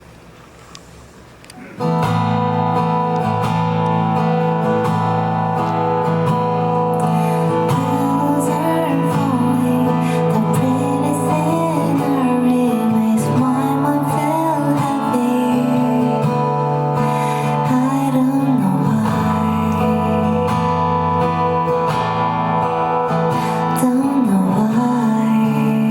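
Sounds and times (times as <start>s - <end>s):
acoustic guitar strumming: 1.6s - 25.9s
person singing: 6.8s - 21.6s, 23.3s - 25.9s.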